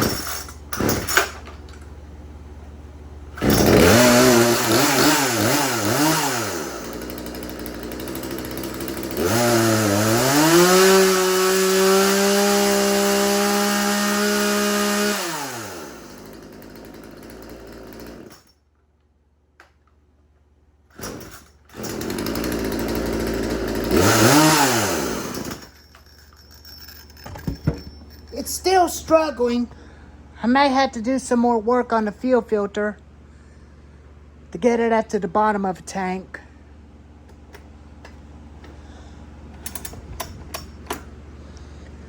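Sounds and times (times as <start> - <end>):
chainsaw revving: 0.0 - 1.5, 3.4 - 18.5, 20.9 - 25.8.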